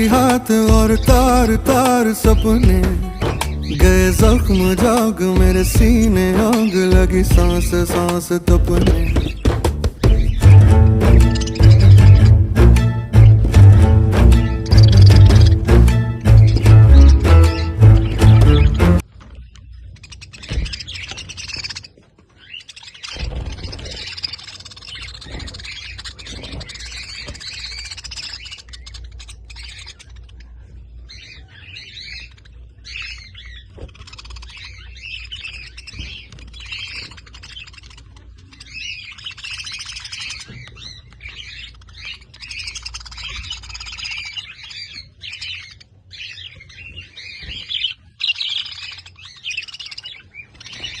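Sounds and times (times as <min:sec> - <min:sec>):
budgerigars chattering: 0:00.0 - 0:51.0.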